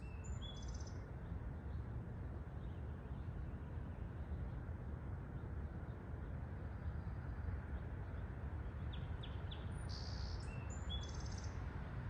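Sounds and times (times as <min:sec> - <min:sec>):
small bird chirps and trill: 0:00.0 - 0:01.0, 0:08.9 - 0:11.6.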